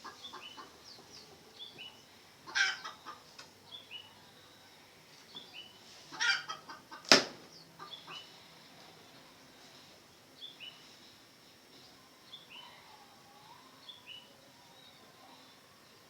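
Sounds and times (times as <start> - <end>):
junglefowl clucking calls: 0.0 - 1.1, 2.4 - 3.4, 6.0 - 7.1, 7.8 - 8.3
small birds chirping: 0.0 - 16.0
sharp knock: 7.1 - 7.4.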